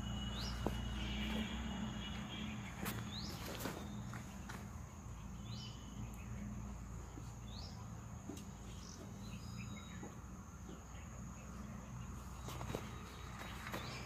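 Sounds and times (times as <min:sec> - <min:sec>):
high insect drone: 0:00.0 - 0:08.2.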